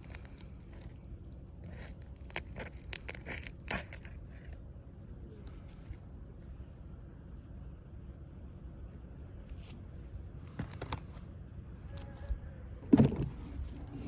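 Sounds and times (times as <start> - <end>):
shingles tearing loose crackles: 1.6 - 4.2.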